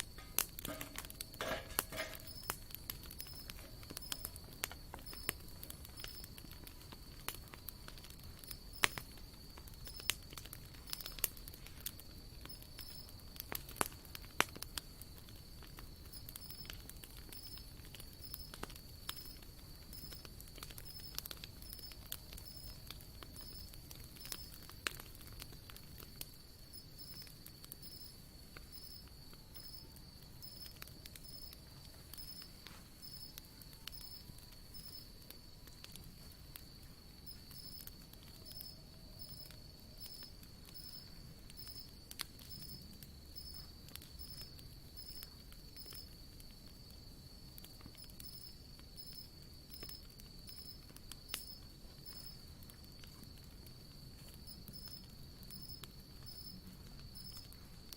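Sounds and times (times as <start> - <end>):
campfire crackling: 0.0 - 57.9.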